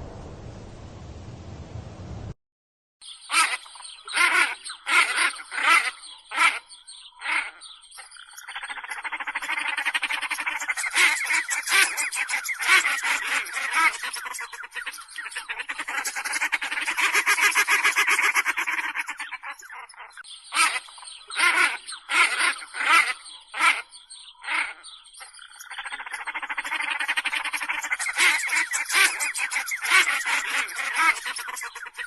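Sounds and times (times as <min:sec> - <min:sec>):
rapid animal chatter: 0:08.4 - 0:23.8, 0:24.5 - 0:32.0
loud animal calls: 0:20.5 - 0:32.0.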